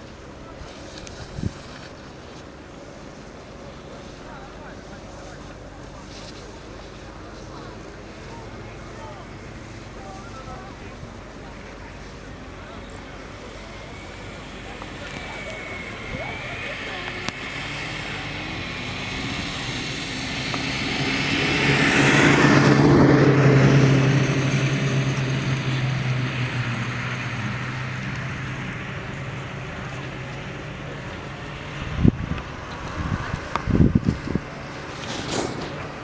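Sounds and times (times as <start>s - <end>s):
vehicle engine passing by: 12.0s - 36.0s.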